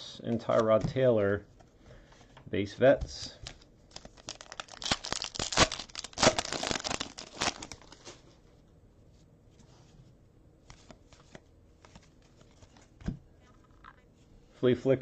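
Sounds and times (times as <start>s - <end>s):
wrapper crinkling and tearing: 3.4s - 8.2s.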